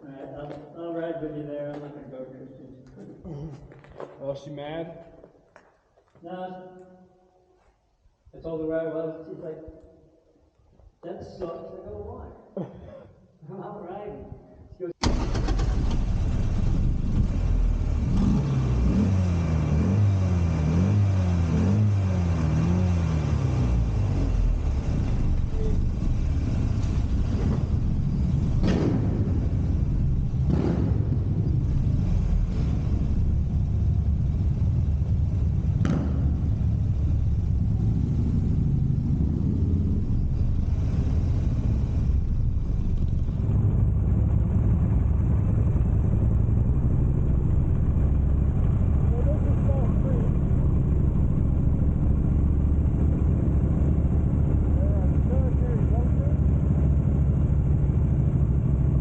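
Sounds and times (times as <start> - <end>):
motorcycle engine rumbling: 20.4 - 59.0.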